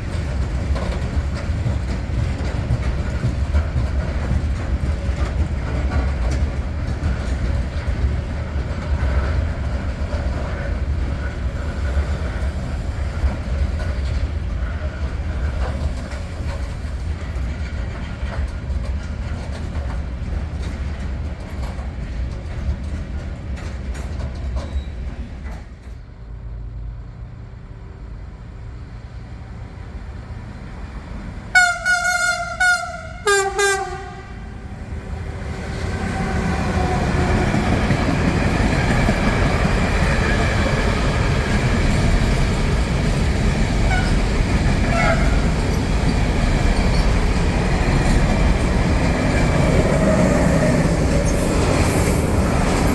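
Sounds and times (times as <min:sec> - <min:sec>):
freight train wagons rumbling: 0:00.0 - 0:52.9
train horn blasts: 0:31.5 - 0:34.7, 0:43.9 - 0:44.1, 0:44.9 - 0:45.4.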